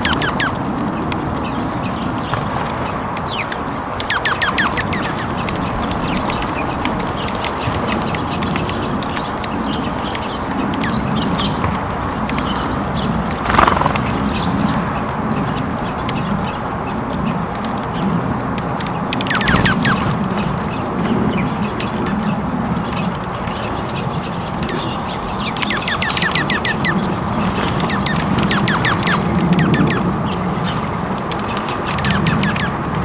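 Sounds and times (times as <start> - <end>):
lower bird calls: 0.0 - 6.7, 9.6 - 18.1, 21.0 - 30.8
small birds chirping: 0.0 - 33.0
steady outdoor hiss: 0.0 - 33.0.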